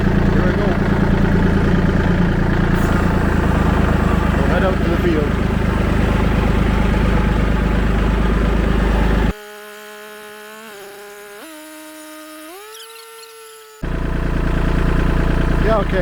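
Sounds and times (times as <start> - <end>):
tractor diesel engine running: 0.0 - 9.4, 13.8 - 16.0
thin buzzing whine: 2.7 - 13.9.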